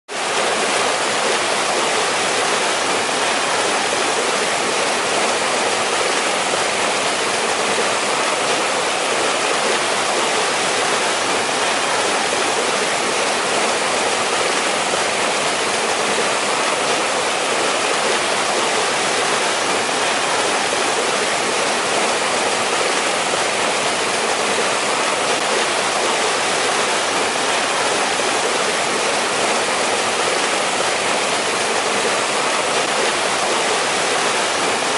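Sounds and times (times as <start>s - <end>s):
stream splashing over rocks: 0.1s - 34.9s.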